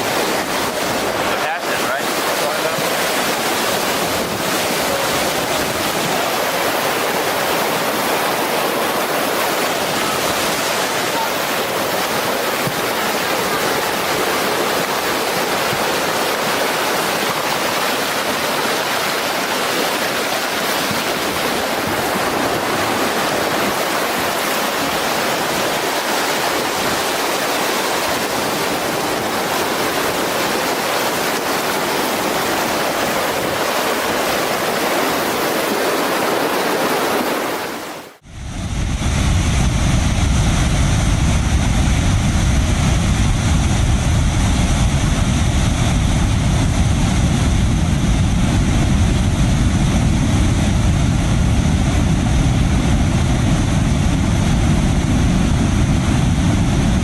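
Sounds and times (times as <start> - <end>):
rushing floodwater: 0.0 - 38.2.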